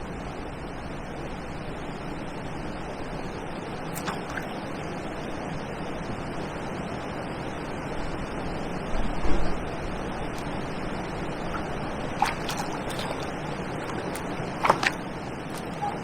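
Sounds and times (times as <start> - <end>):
water at riverbank: 0.0 - 16.0
wind: 0.0 - 16.0.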